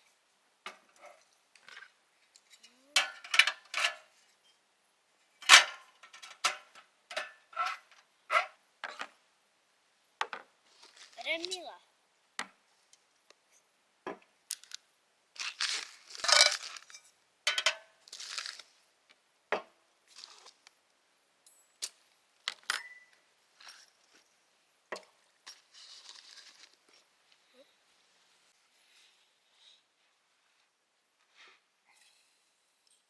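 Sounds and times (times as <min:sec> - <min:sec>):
sharp clinks and knocks: 0:02.5 - 0:04.1
rustling or scraping: 0:05.4 - 0:09.1, 0:10.6 - 0:11.7, 0:15.4 - 0:17.1, 0:18.1 - 0:18.8, 0:25.5 - 0:27.5.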